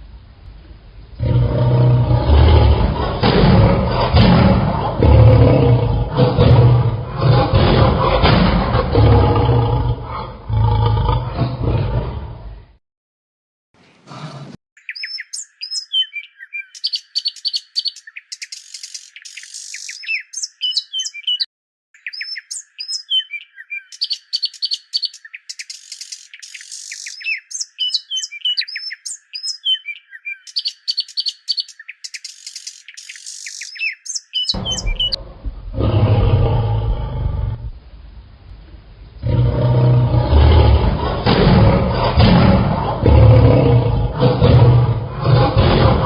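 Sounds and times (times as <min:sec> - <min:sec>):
songbird singing: 0:14.8 - 0:35.5.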